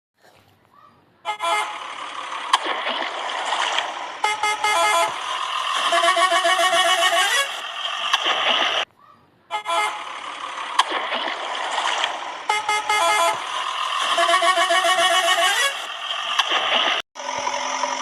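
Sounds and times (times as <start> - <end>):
electronic toy horn honks: 1.3 - 1.9, 4.2 - 7.7, 9.5 - 10.2, 12.5 - 15.9.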